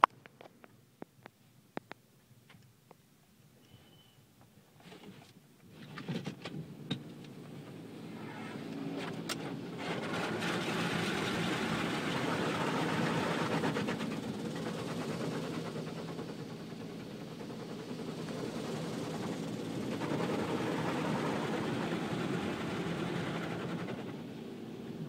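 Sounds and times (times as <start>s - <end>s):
rushing water spray: 9.2s - 15.8s.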